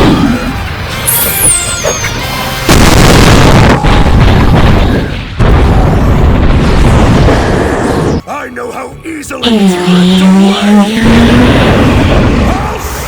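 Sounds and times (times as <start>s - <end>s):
background music: 0.0s - 13.0s
mouth-made explosion sounds: 2.7s - 8.2s, 9.4s - 13.0s.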